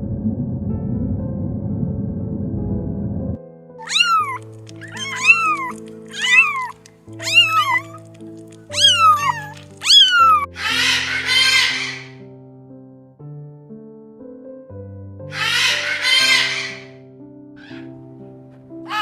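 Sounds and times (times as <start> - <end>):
cat meowing: 3.8 - 12.2, 15.4 - 16.9
background music of held notes: 3.8 - 13.2, 14.8 - 19.0.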